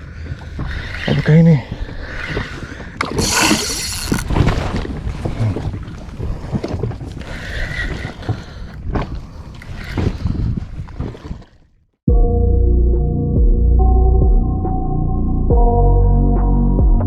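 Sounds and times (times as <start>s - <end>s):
short hissing burst: 3.2s - 4.3s.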